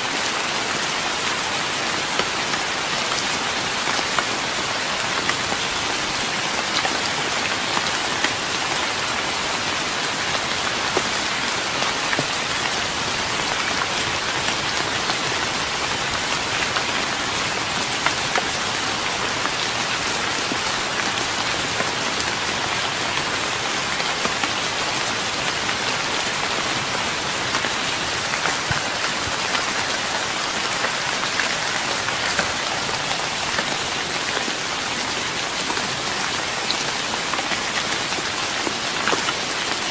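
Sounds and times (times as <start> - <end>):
rain on a wooden deck: 0.0 - 39.9.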